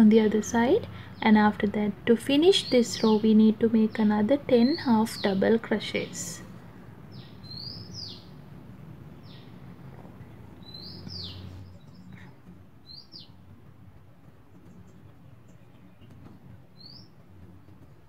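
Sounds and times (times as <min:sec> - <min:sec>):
faint low room noise: 0:00.0 - 0:18.0
small bird chirping: 0:07.1 - 0:08.4, 0:09.2 - 0:09.6, 0:10.2 - 0:13.4, 0:14.6 - 0:18.0.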